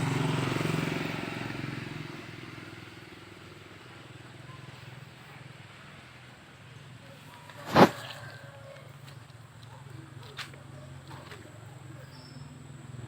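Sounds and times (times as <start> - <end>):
vehicle engine passing: 0.0 - 9.3.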